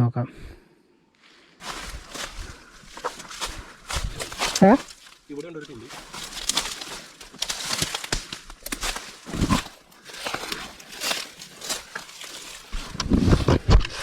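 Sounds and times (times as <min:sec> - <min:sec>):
footsteps through dry leaves: 0:01.4 - 0:13.7.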